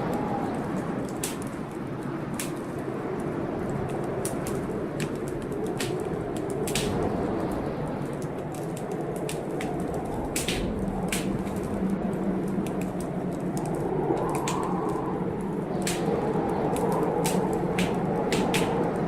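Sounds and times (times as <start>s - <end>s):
rushing storm noise: 0.0s - 19.0s
wood fire crackling: 0.0s - 19.0s
sharp pops of fire: 0.9s - 7.4s, 8.1s - 13.7s, 15.7s - 19.0s.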